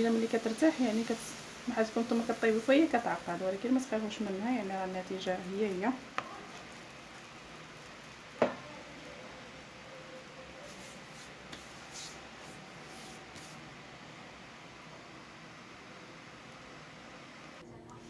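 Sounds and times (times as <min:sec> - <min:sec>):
faint steady hiss: 0:00.0 - 0:18.0
soft faint scrapes: 0:10.6 - 0:13.6.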